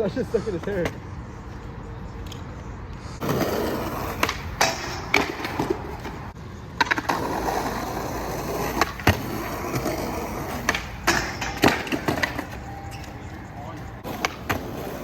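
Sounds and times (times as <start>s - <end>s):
skateboard wheels rolling on pavement: 0.0s - 15.0s
skateboard clacks and knocks: 4.0s - 7.8s, 8.4s - 13.2s.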